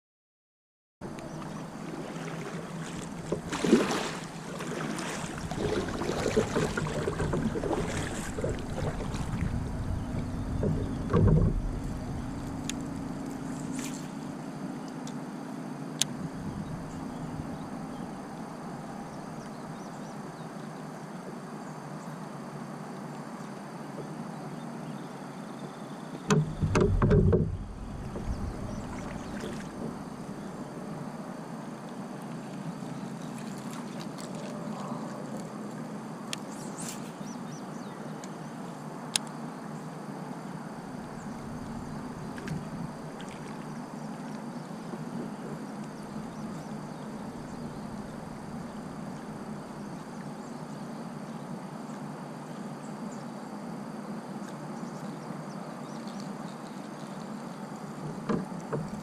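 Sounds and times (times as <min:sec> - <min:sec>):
water washing against kayak hull: 0:01.3 - 0:14.3, 0:26.3 - 0:30.8, 0:40.8 - 0:50.1, 0:57.9 - 0:59.0
thumps on kayak: 0:05.5 - 0:12.6, 0:26.3 - 0:30.2, 0:58.0 - 0:59.0.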